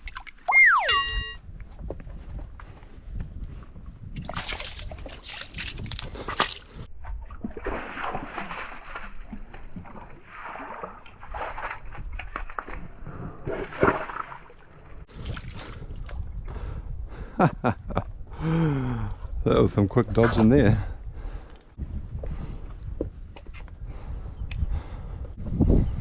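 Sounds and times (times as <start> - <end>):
wind rumbling on microphone: 2.4 - 7.4, 15.1 - 26.0.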